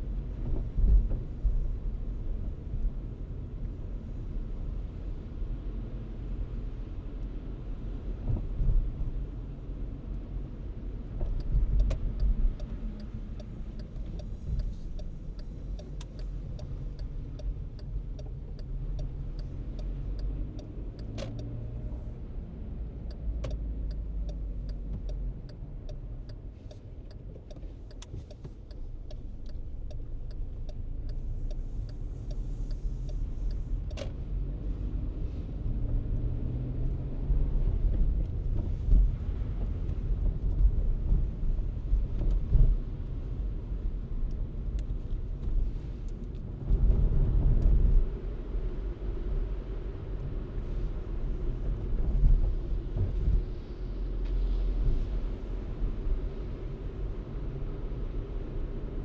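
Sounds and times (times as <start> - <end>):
car road and engine rumble: 0.0 - 59.0
light evenly spaced clicks: 11.3 - 21.5, 23.1 - 34.1.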